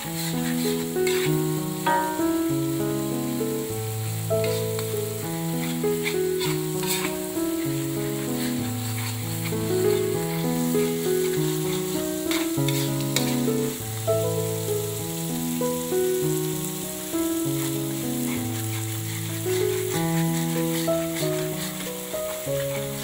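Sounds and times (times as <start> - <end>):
background music of held notes: 0.0 - 23.0
spatula stirring in wok: 0.0 - 23.0
spice paste sizzling in oil: 0.0 - 23.0.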